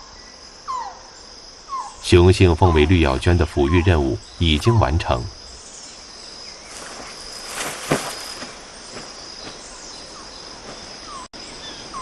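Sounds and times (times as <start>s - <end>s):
high-pitched insect drone: 0.0s - 11.8s
soft rustles: 6.7s - 9.8s.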